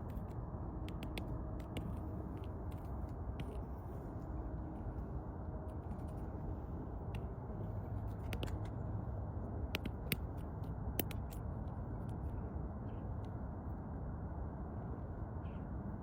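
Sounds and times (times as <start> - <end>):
woodpecker pecking: 0.0 - 3.6.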